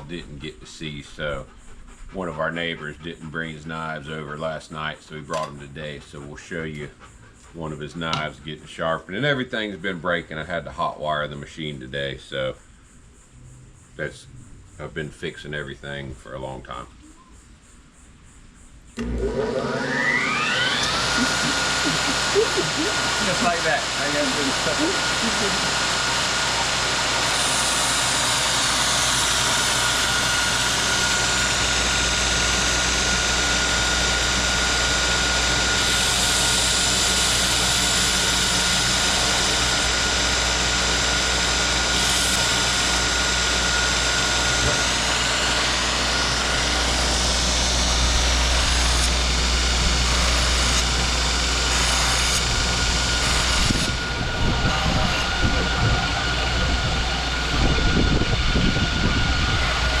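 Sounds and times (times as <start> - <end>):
knife sharpening machine whine: 18.9 - 60.0.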